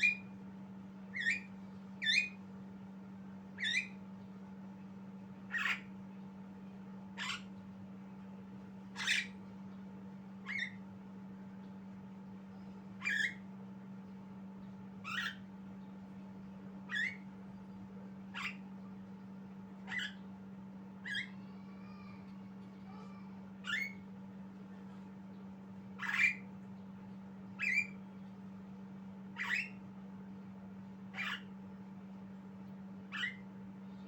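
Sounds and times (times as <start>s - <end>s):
steady low hum: 0.0s - 34.0s
soft bird chirps: 1.1s - 2.4s, 3.6s - 4.0s, 7.2s - 7.5s, 9.0s - 9.8s, 10.4s - 10.8s, 12.5s - 13.4s, 14.6s - 16.0s, 16.9s - 17.2s, 27.6s - 28.3s, 29.4s - 29.8s, 31.2s - 31.5s, 33.1s - 34.0s.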